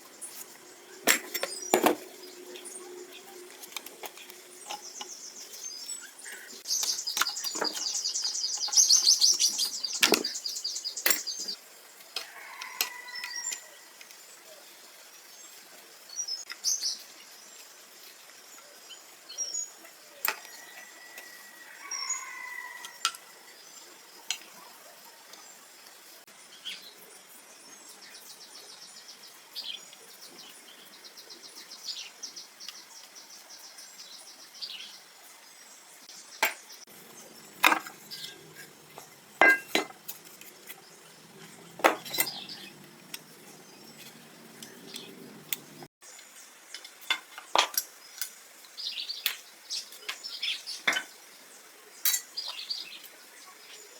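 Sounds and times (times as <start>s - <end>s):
bird chirping: 0.0s - 11.6s, 35.7s - 46.2s
metal tools clinking: 37.6s - 40.5s, 41.6s - 43.4s.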